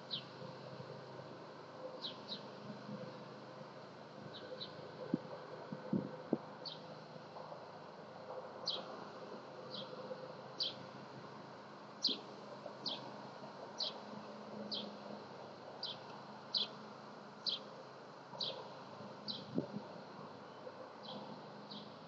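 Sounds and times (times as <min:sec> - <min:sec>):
faint background hum: 0:00.0 - 0:22.0.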